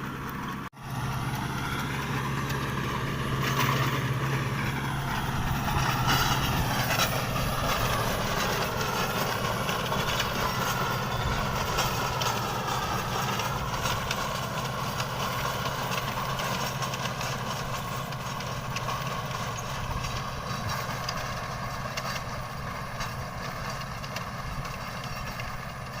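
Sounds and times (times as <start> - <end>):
heavy vehicle engine humming: 0.0 - 26.0
wavering high whine: 0.8 - 15.2.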